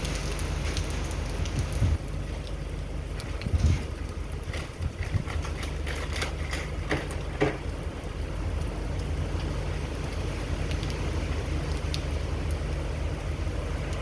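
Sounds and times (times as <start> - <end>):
rain pattering: 0.0 - 14.0
wind low rumble: 0.0 - 14.0
knocks and hits: 6.8 - 7.6.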